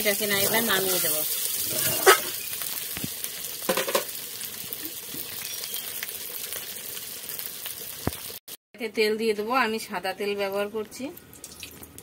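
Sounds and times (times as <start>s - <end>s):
meat sizzling in hot oil: 0.0s - 8.6s
metal spatula scraping a pan: 0.8s - 2.4s.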